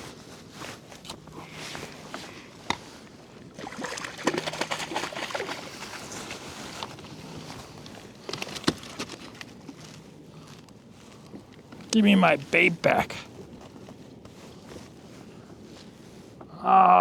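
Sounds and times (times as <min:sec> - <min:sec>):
water lapping: 0:03.3 - 0:07.3
handling rustling and clicks: 0:06.7 - 0:12.0.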